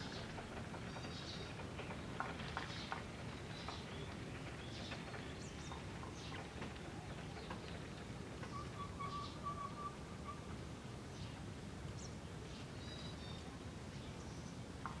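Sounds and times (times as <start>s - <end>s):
bird chirps and calls: 8.4s - 10.5s.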